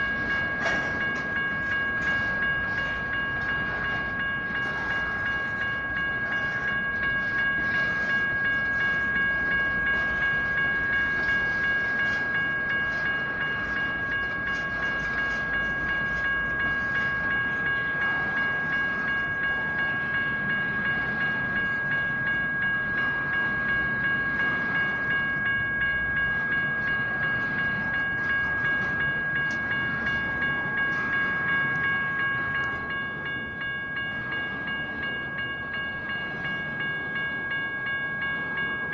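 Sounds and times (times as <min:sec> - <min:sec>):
electronic crossing bell ringing: 0:00.0 - 0:38.9
train rumbling over rails: 0:00.0 - 0:38.9.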